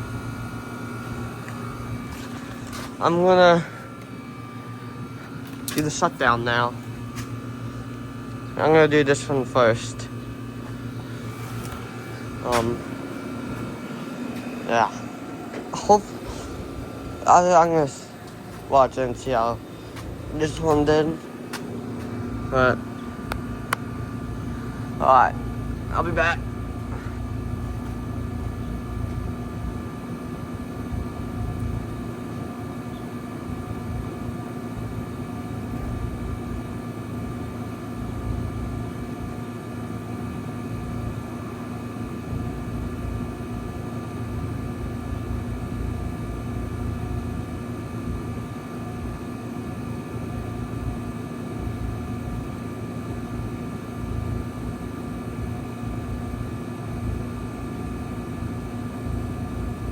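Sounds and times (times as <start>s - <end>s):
steady tones: 0.0s - 29.2s
heat pump humming: 0.0s - 59.9s.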